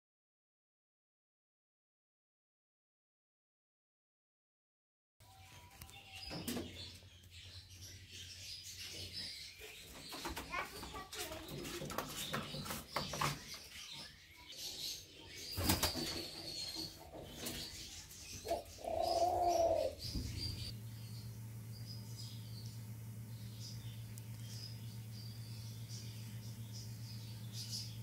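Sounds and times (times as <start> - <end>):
scratching and rustling: 8.8 - 14.1
dove cooing: 15.6 - 20.7.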